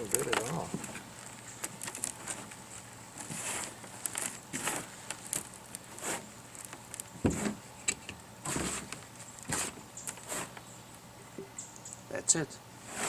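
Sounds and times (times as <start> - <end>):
hands rustling through soil: 0.0 - 10.7
dull thump: 7.2 - 7.6.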